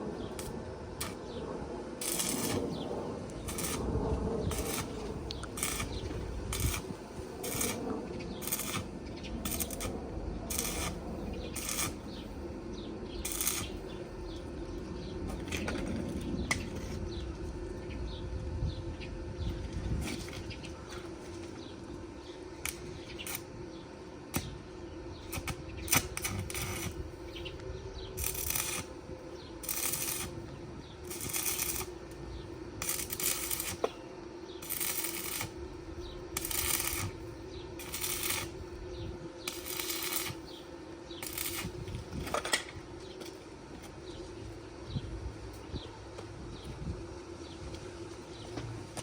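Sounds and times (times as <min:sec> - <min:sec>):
steady low hum: 0:00.0 - 0:49.0
rhythmic scraping strokes: 0:02.0 - 0:12.4, 0:28.2 - 0:38.6, 0:39.4 - 0:42.4.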